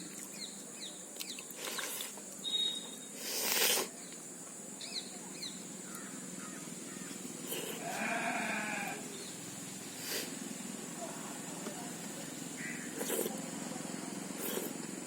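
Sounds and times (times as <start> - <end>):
short high chirps: 2.4 - 3.1
drawn-out animal call: 7.7 - 9.2, 12.5 - 13.0.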